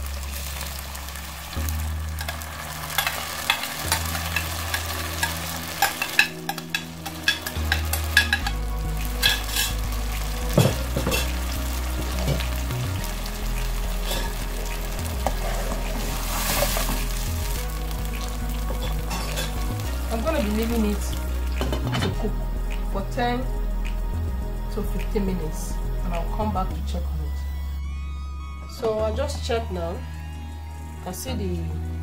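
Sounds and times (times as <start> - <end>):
puree sizzling in hot oil: 0.0 - 22.8
spoon stirring pot: 2.2 - 8.6.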